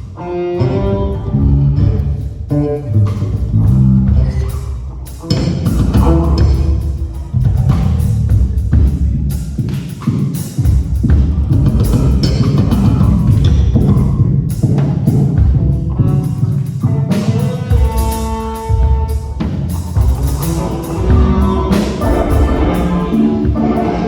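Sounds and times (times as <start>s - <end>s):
drums: 0.0s - 24.0s
guitar: 0.0s - 24.0s
live band playing pop: 14.6s - 24.0s.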